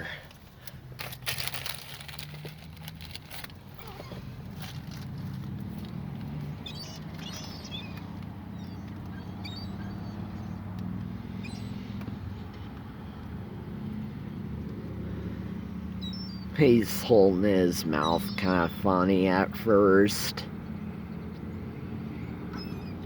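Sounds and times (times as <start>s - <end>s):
low motor hum: 0.6s - 23.0s
seagulls calling: 6.4s - 13.2s, 15.5s - 23.0s.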